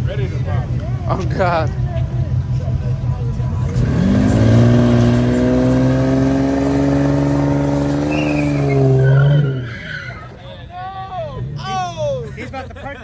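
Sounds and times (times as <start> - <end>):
car engine revving: 2.4 - 9.9.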